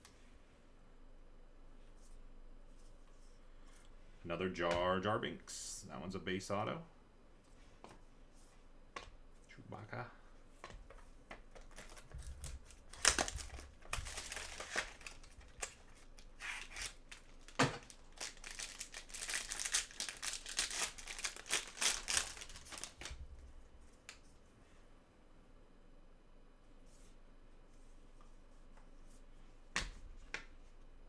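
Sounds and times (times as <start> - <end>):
wrapper tearing and crinkling: 11.6 - 23.2.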